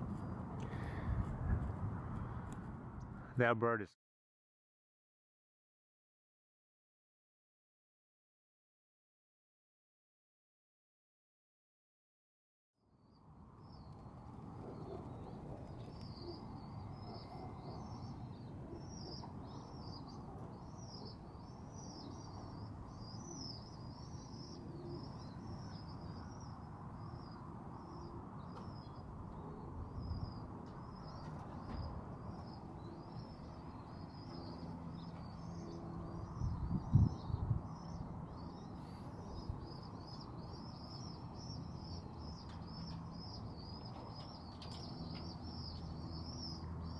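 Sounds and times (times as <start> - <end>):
steady low rumble: 0.0 - 3.4
small birds chirping: 13.0 - 46.9
pigeon cooing: 14.5 - 19.3.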